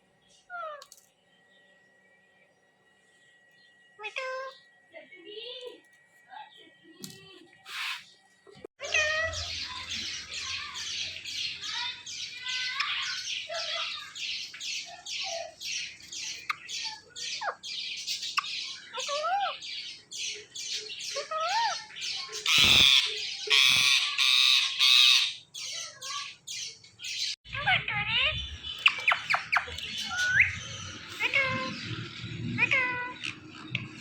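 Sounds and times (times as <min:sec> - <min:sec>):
parakeet squawking: 0:07.7 - 0:08.1, 0:08.8 - 0:17.6, 0:18.2 - 0:19.6, 0:21.0 - 0:26.4, 0:27.5 - 0:34.0.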